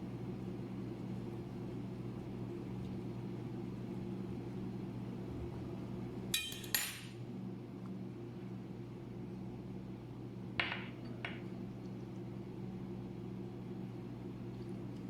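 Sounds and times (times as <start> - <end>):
low mechanical hum: 0.0 - 15.0
dishes clinking: 6.4 - 7.2, 10.6 - 11.6.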